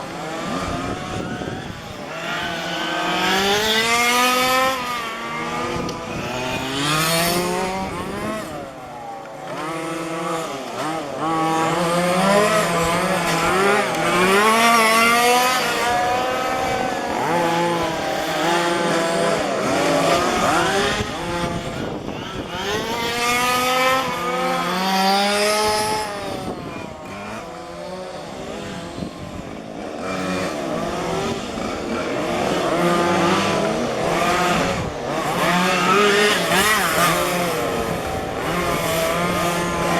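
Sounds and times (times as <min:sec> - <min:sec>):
rc car engines revving: 0:00.0 - 0:39.9.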